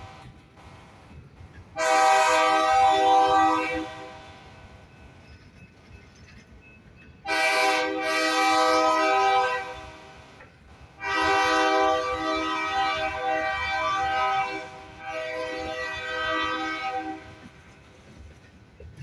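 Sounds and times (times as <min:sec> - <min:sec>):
low rumble of passing train: 0:00.0 - 0:19.0
locomotive air horn blasts: 0:01.8 - 0:04.4, 0:07.2 - 0:10.3, 0:11.0 - 0:17.5.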